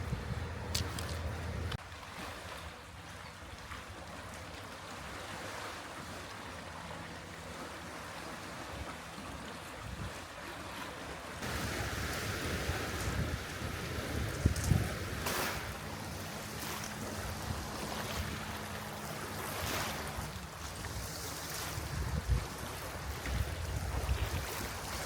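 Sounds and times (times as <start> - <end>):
low steady hum: 0.0 - 1.8
wind on microphone: 0.0 - 1.8, 9.8 - 10.3, 11.4 - 18.6, 19.5 - 25.0
sea waves washing on shore: 0.0 - 25.0.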